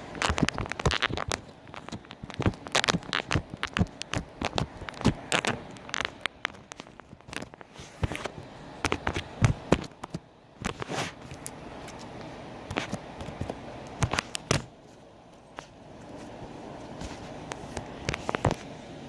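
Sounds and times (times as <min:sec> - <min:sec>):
slime crackling and popping: 0:00.0 - 0:10.8.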